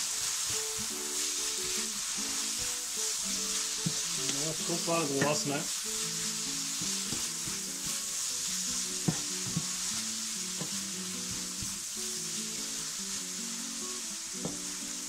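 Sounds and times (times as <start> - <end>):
wooden spatula stirring: 0.0 - 12.9
food sizzling in a frying pan: 0.0 - 15.0
quiet background music: 0.1 - 15.0
spatula tapping on pan: 3.8 - 4.4, 6.8 - 7.7, 9.0 - 9.8.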